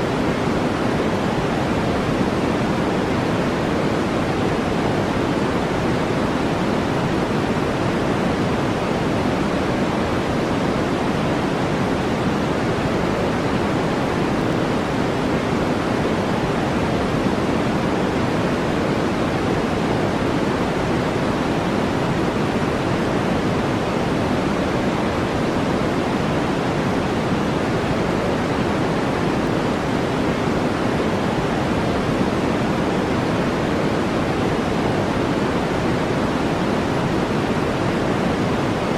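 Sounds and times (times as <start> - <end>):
steady brown noise: 0.0 - 38.9.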